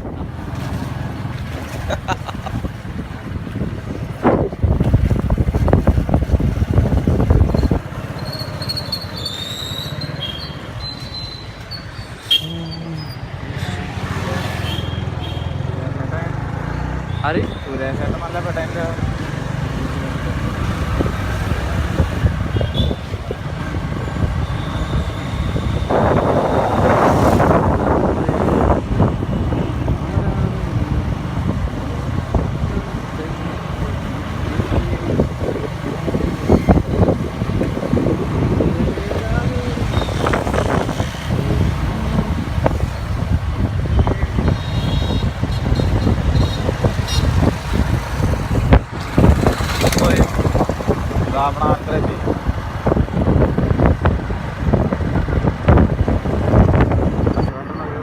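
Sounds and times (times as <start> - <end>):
motorcycle riding: 0.0 - 58.0
road and wind noise: 0.0 - 58.0
loud rushing noise: 46.0 - 54.1.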